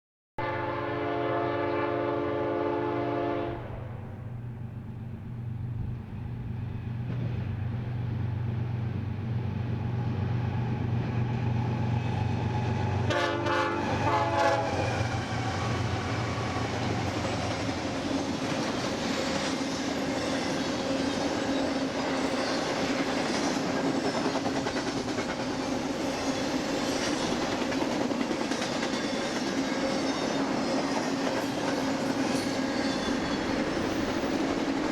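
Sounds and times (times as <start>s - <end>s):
locomotive air horn: 0.4s - 4.3s, 13.1s - 14.9s
train wheels clattering on rails: 4.2s - 34.9s.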